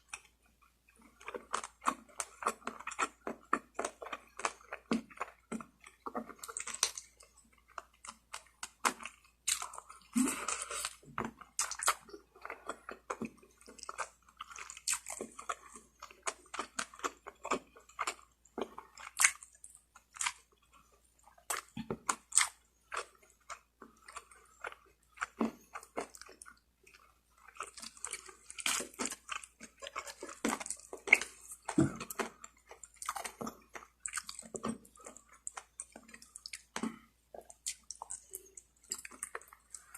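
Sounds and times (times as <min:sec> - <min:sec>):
person chewing chicken: 0:00.0 - 0:39.9.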